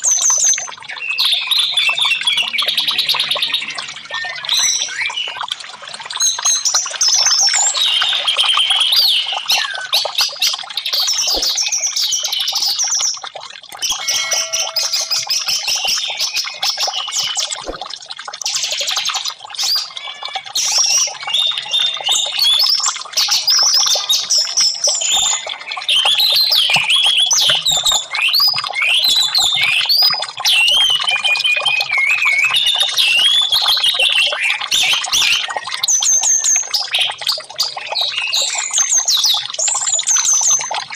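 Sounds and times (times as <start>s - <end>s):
thrush singing whistled phrases: 13.8s - 17.9s.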